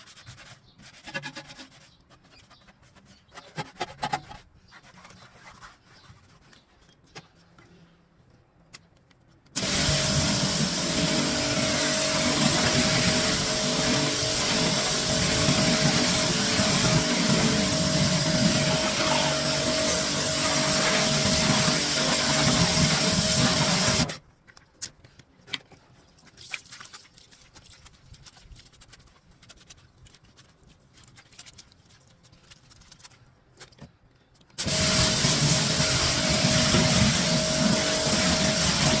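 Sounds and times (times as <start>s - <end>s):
cleaning machine motor humming: 9.6s - 24.1s, 34.6s - 39.0s.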